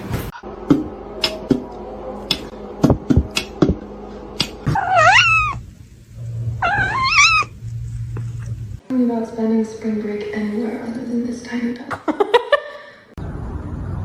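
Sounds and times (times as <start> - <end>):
cat yowling: 4.7 - 5.6, 6.6 - 7.5.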